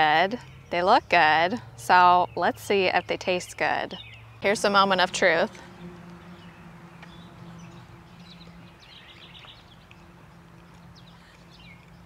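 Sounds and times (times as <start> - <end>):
birds chirping: 0.0 - 12.0
faint low hum: 4.4 - 12.0.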